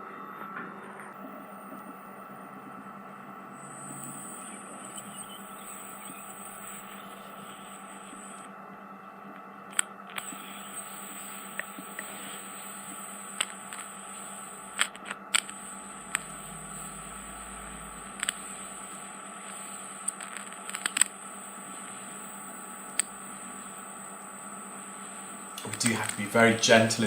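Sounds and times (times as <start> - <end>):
suction unit whine and hiss: 0.0 - 27.0
sharp clicks and crackles: 9.7 - 23.9, 25.5 - 26.4.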